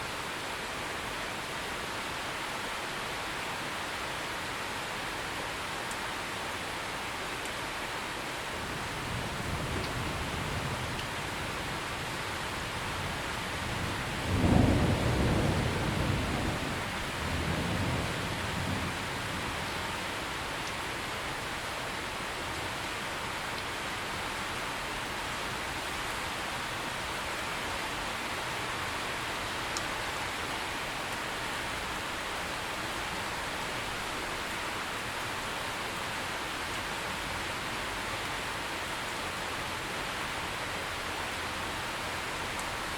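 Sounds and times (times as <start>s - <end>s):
steady rain falling: 0.0s - 42.9s
thunder rumble: 13.7s - 19.7s.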